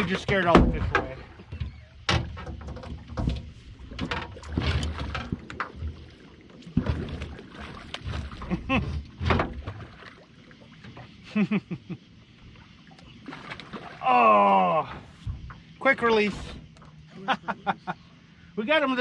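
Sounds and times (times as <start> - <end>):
knocks and thumps on small boat: 0.0 - 11.2, 14.8 - 16.8.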